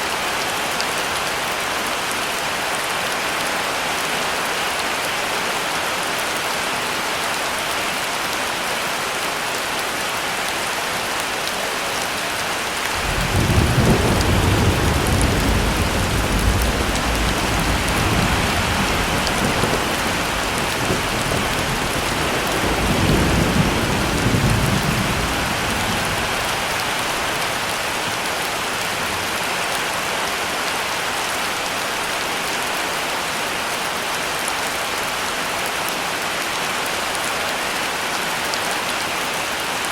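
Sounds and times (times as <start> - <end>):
heavy rain: 0.0 - 39.9
thunder rumbling: 12.9 - 26.7.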